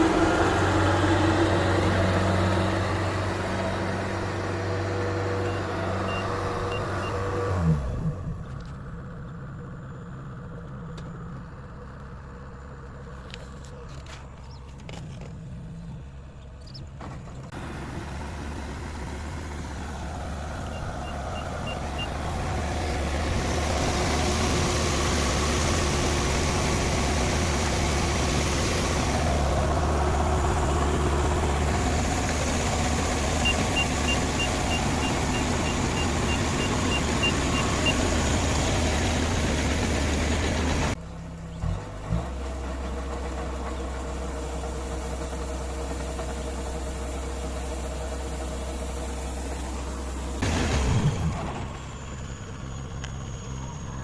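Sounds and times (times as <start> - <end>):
combine harvester running: 0.0 - 15.6, 16.6 - 54.0
reversing alarm beeping: 5.4 - 7.4, 20.6 - 22.2, 33.1 - 38.5.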